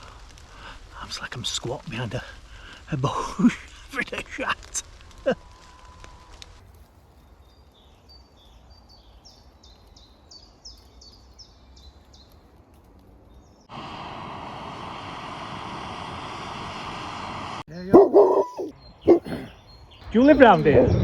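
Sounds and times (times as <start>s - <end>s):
faint woodland background: 0.0s - 14.4s, 17.7s - 20.6s
songbird singing: 7.3s - 12.4s, 17.7s - 20.6s.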